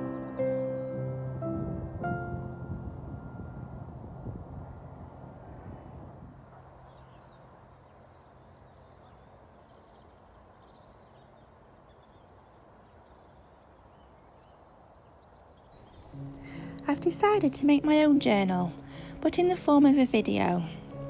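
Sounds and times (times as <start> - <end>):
background piano music: 0.0 - 6.1, 15.8 - 21.0
outdoor background noise: 0.0 - 21.0.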